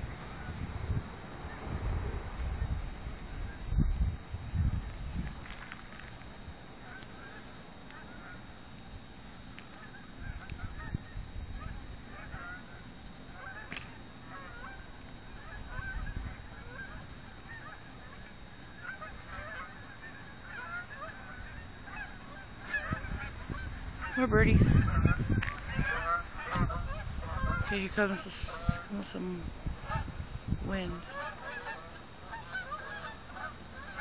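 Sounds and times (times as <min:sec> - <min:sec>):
low gusts of noise: 0:00.0 - 0:34.0
geese honking: 0:06.8 - 0:08.9, 0:09.6 - 0:29.2, 0:29.8 - 0:30.2, 0:30.8 - 0:34.0.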